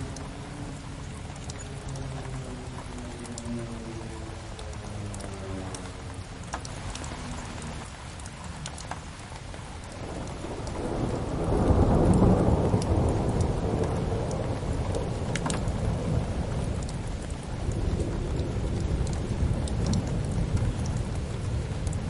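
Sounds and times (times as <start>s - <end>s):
steady rain: 0.0s - 22.0s
thunder rolling: 10.0s - 22.0s.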